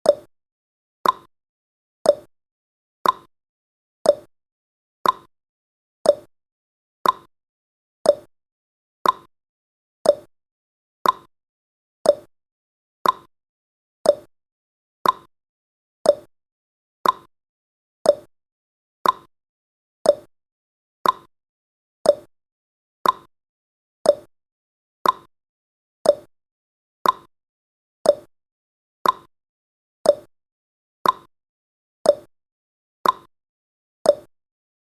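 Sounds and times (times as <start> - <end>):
timer ticking: 0.0 - 0.3, 1.0 - 1.3, 2.0 - 2.3, 3.0 - 3.3, 4.0 - 4.3, 5.0 - 5.3, 6.0 - 6.3, 7.0 - 7.3, 8.0 - 8.3, 9.0 - 9.3, 10.0 - 10.3, 11.0 - 11.3, 12.0 - 12.3, 13.0 - 13.3, 14.0 - 14.3, 15.0 - 15.3, 16.0 - 16.3, 17.0 - 17.3, 18.0 - 18.3, 19.0 - 19.3, 20.0 - 20.3, 21.0 - 21.3, 22.0 - 22.3, 23.0 - 23.3, 24.0 - 24.3, 25.0 - 25.3, 26.0 - 26.3, 27.0 - 27.3, 28.0 - 28.3, 29.0 - 29.3, 30.0 - 30.3, 31.0 - 31.3, 32.0 - 32.3, 33.0 - 33.3, 34.1 - 34.3.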